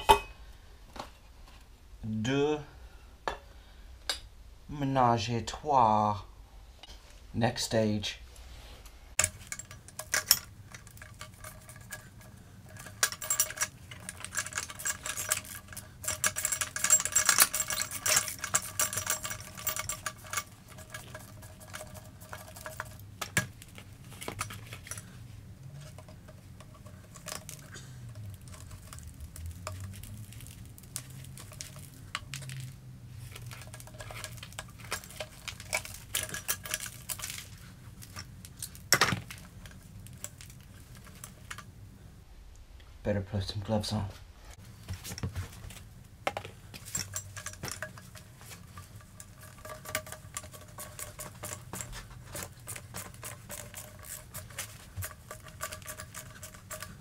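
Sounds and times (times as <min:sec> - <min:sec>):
metal scraping and rubbing: 0:08.4 - 0:41.6, 0:46.7 - 0:57.0
metal parts clinking and knocking: 0:09.2 - 0:41.7, 0:45.0 - 0:57.0.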